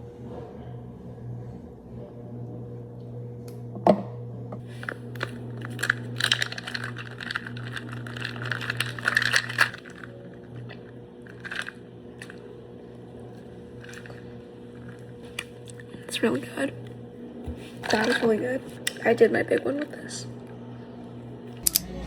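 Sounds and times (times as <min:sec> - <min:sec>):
steady low hum: 0:00.0 - 0:22.0
crunching and chewing: 0:04.7 - 0:16.0.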